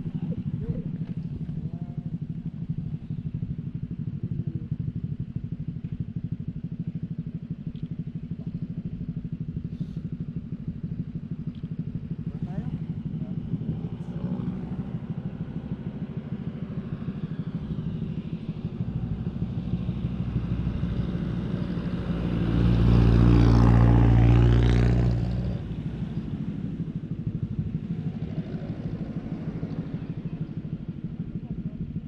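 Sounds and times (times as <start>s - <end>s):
motorcycle engine running: 0.0s - 32.0s
louder engine: 8.3s - 32.0s
wind and road noise: 9.1s - 31.8s.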